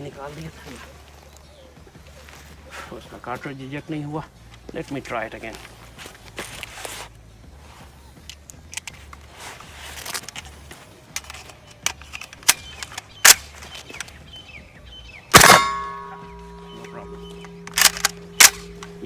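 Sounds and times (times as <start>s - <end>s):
pistol metallic clicks: 8.2s - 9.2s, 10.0s - 14.2s, 15.3s - 19.0s
pistol sharp clack: 11.8s - 14.2s, 15.3s - 19.0s.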